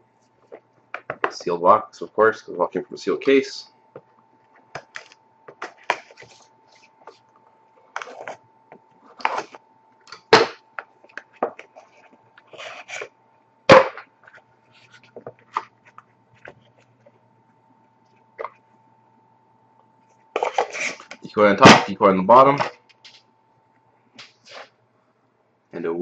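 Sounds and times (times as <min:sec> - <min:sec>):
cardboard and wrapper rustling: 0:09.0 - 0:09.6.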